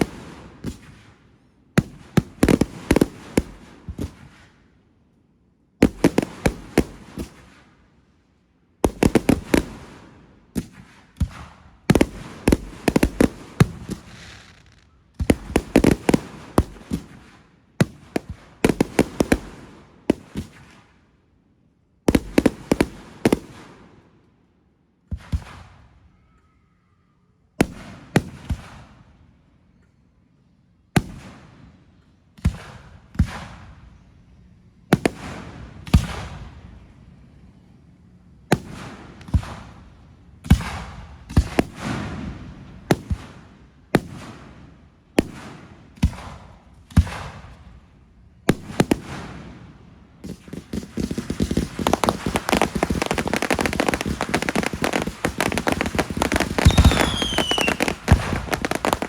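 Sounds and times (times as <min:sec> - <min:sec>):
fireworks bangs: 0:08.9 - 0:20.7, 0:48.5 - 0:59.0.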